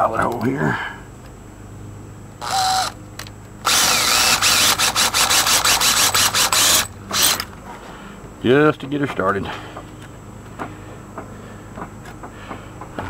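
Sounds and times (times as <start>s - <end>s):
power drill drilling: 2.4s - 3.0s, 3.6s - 7.4s.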